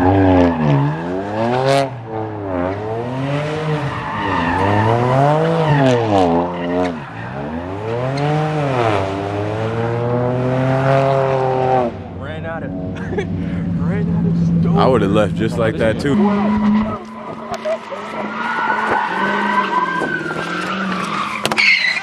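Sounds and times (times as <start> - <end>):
car engine revving: 0.0 - 22.0
tyres squealing: 15.8 - 22.0.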